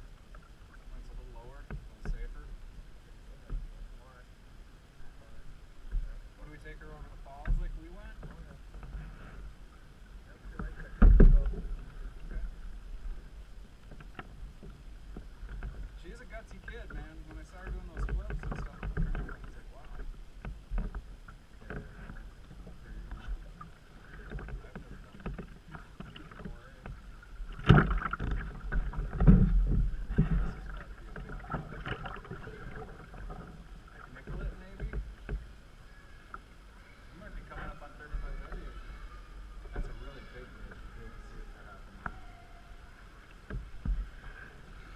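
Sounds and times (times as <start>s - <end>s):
low rumble and water noise: 0.0s - 44.9s
canoe thumps: 10.5s - 35.5s
loud thump: 11.0s - 11.6s.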